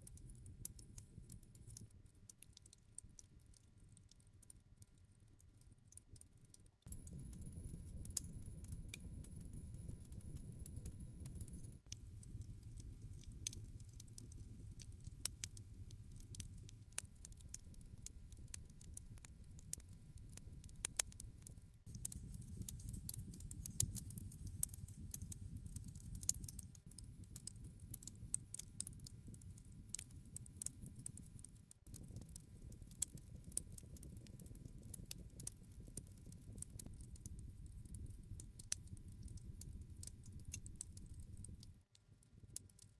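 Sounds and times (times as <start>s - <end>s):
campfire crackling: 11.2s - 41.6s.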